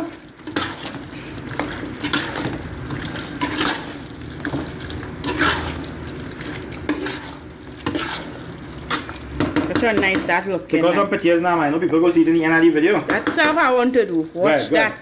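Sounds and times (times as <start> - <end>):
sauce sloshing: 0.0 - 14.7
spoon scraping pot: 0.4 - 10.4.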